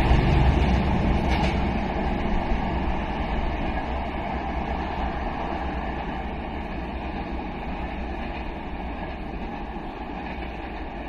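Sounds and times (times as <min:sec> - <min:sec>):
train rumbling on rails: 0:00.0 - 0:11.0.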